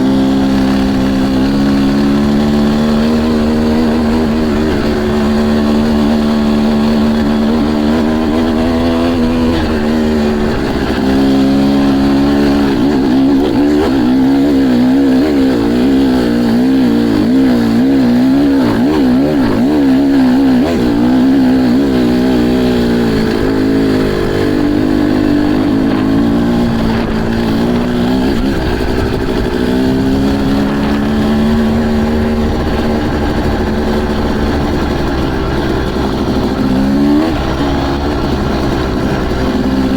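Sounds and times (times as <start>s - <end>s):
motocross bike engines revving: 0.0s - 39.9s.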